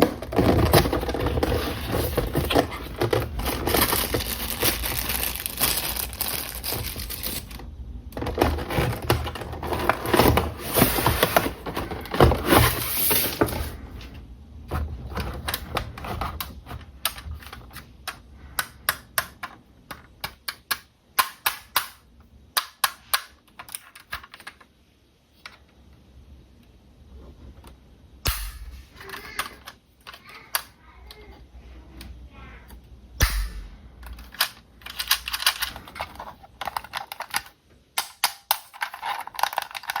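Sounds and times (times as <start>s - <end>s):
plastic packaging crinkling: 0.0s - 13.8s.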